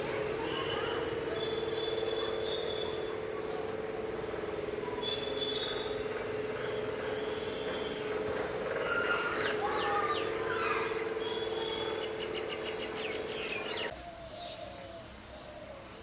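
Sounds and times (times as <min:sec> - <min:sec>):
low mechanical hum: 0:00.0 - 0:16.0
songbird chirping and whistling: 0:05.0 - 0:06.0.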